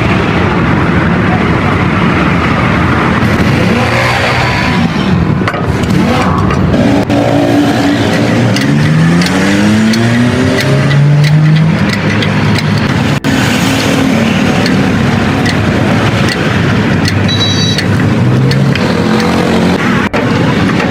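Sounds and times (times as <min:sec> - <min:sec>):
vehicle engine speeding up: 0:00.0 - 0:17.3, 0:17.9 - 0:20.9
clicks and knocks: 0:08.0 - 0:20.9.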